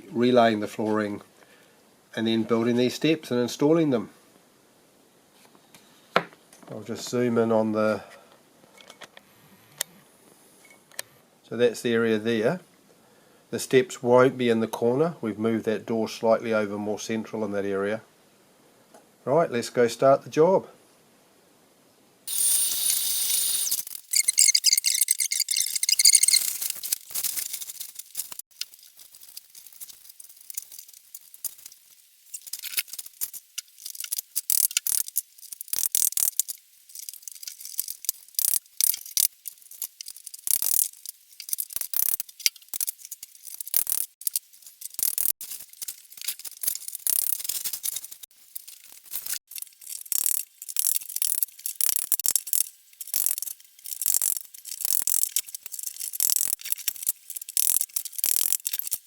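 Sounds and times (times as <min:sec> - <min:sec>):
plastic floor tiles clicking together: 0:32.4 - 0:45.3, 0:49.2 - 0:59.0.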